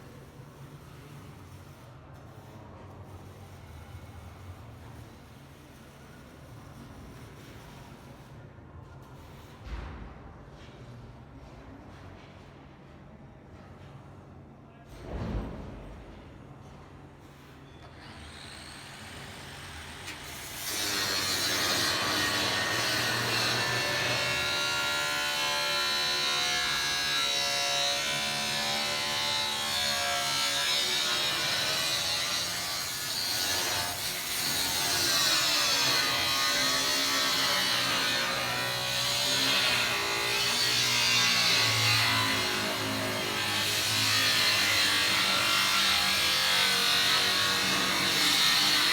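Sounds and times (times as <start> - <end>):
power tool cutting steel: 18.0 - 48.9.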